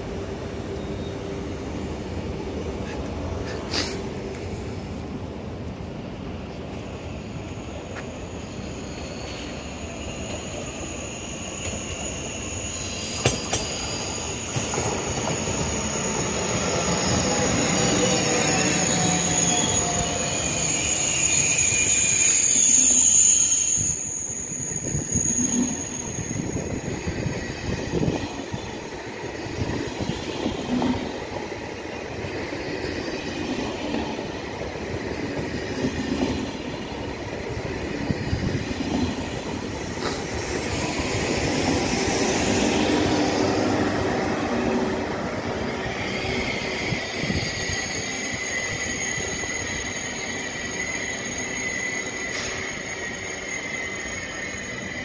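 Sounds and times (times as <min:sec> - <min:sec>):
high wheel squeal: 0:07.8 - 0:55.0
train wheels rumbling and rattling: 0:11.5 - 0:22.2, 0:23.8 - 0:55.0.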